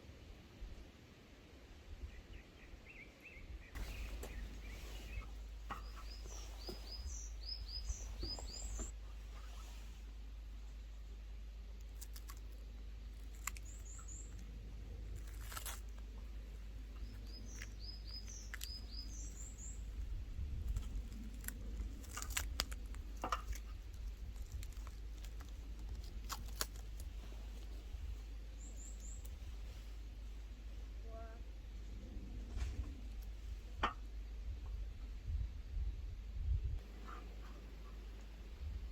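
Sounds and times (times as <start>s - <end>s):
steady low background hum: 0.0s - 38.9s
small birds chirping: 2.0s - 31.8s.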